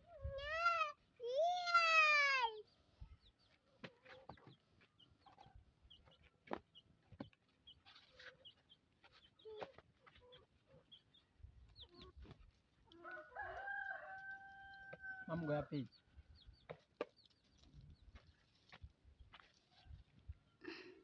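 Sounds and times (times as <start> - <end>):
chickens clucking: 3.8 - 13.1.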